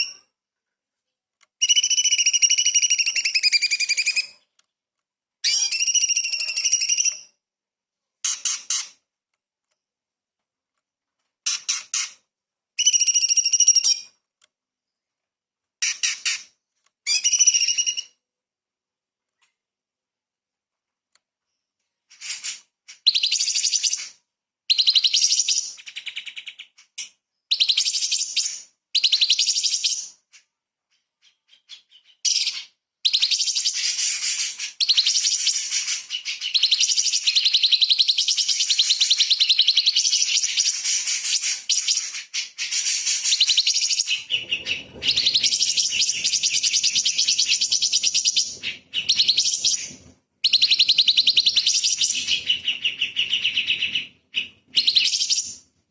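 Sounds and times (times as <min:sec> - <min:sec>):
bird singing high-pitched chatter: 0:01.6 - 0:04.4, 0:05.4 - 0:07.3, 0:12.8 - 0:14.1, 0:17.1 - 0:18.2, 0:22.1 - 0:30.5, 0:31.2 - 0:55.6.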